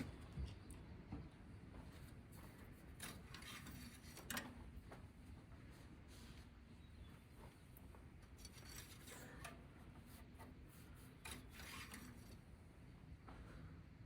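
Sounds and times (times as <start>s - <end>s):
faint rubbing and scraping: 2.4s - 4.6s, 8.3s - 12.7s.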